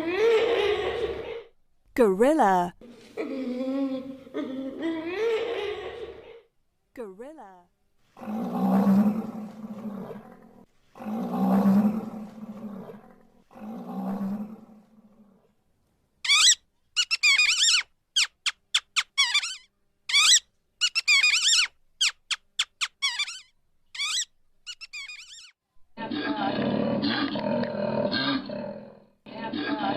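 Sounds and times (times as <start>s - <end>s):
gorilla roaring: 0.2s - 1.5s, 8.2s - 15.4s, 26.0s - 29.9s
high warbling animal squeaks: 16.2s - 25.6s.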